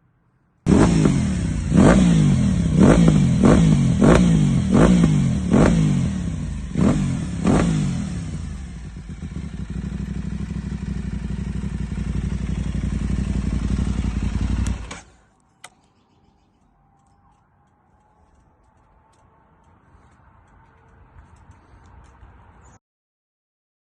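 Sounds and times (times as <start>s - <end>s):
motorcycle engine revving and idling: 0.7s - 15.3s.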